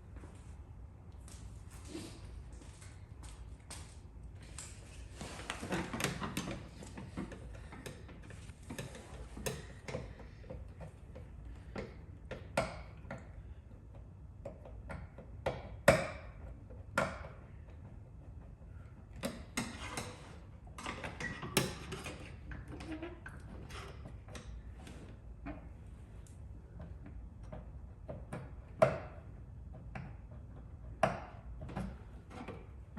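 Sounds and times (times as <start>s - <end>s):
hand tools clicking and tapping: 5.6s - 22.6s.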